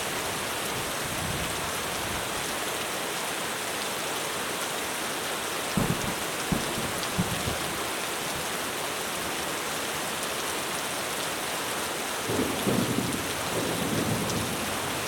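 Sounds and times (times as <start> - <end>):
heavy rain on a roof: 0.0 - 15.0
distant thunder rumbles: 5.8 - 7.8, 12.3 - 14.8.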